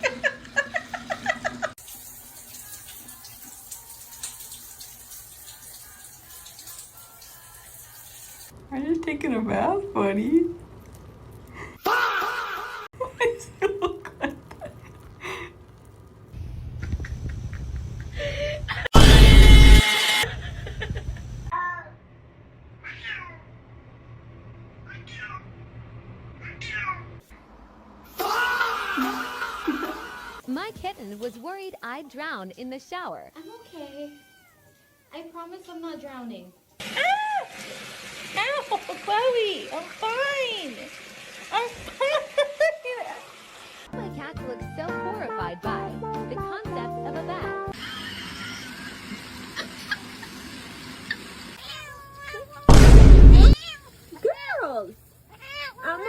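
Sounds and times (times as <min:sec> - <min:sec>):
running water hiss: 0:01.0 - 0:08.6, 0:33.7 - 0:44.0, 0:47.8 - 0:52.7, 0:53.5 - 0:56.0
cat meowing: 0:22.8 - 0:23.4, 0:33.4 - 0:35.2, 0:51.6 - 0:54.0, 0:55.3 - 0:56.0.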